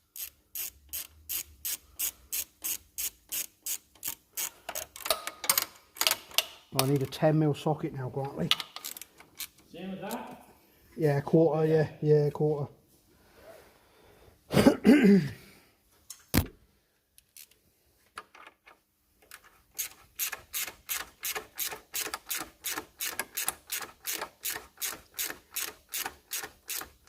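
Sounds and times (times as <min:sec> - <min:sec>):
ratchet clicking: 0:00.1 - 0:07.1, 0:08.6 - 0:09.6, 0:19.3 - 0:27.0.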